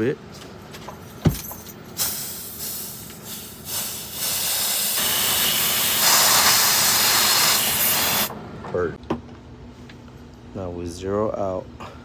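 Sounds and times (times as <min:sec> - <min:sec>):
refrigerant hissing from hoses: 0:02.0 - 0:08.3.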